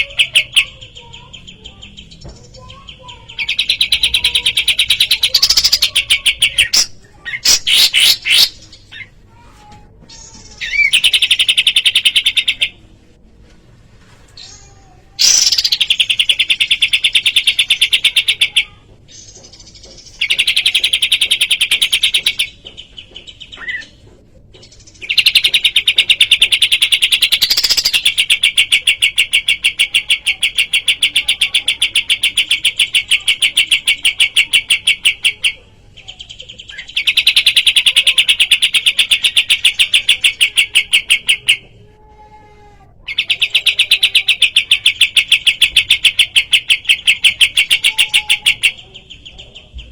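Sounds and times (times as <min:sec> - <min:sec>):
bird chirp: 0:00.0 - 0:09.4, 0:43.1 - 0:49.9.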